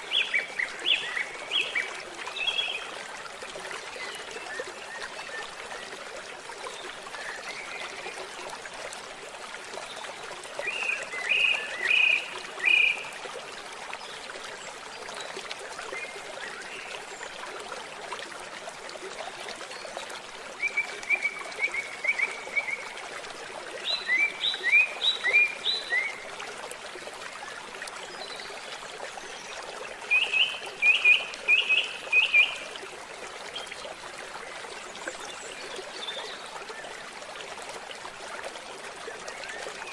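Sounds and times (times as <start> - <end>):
stream trickling: 0.0 - 39.9
songbird singing: 23.8 - 26.2, 30.1 - 32.6.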